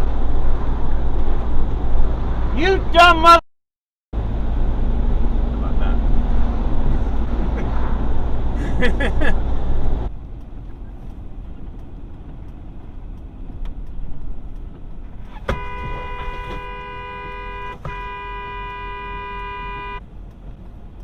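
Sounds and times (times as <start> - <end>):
car driving rumble: 0.0 - 3.4, 4.2 - 21.0
car horn blasts: 15.3 - 20.0.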